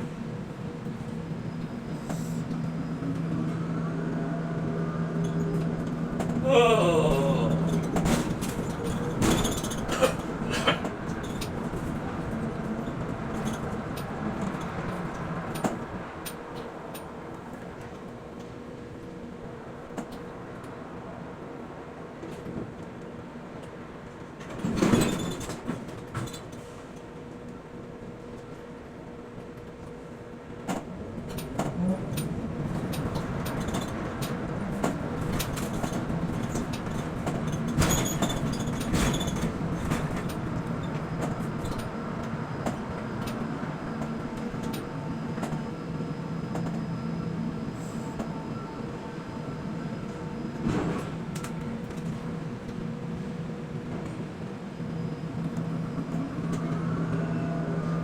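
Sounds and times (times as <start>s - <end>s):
crane machinery hum: 39.6s - 58.0s.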